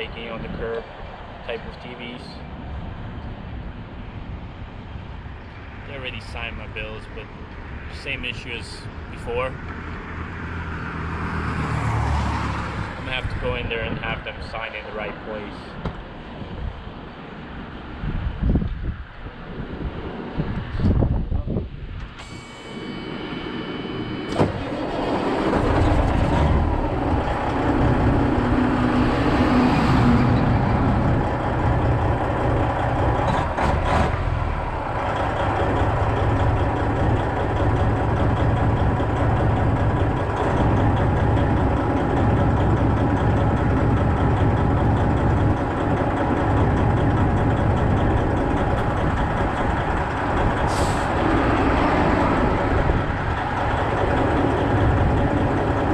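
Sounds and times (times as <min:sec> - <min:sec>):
diesel truck engine running: 0:21.0 - 0:55.9
brief steady tone: 0:22.2 - 0:24.5.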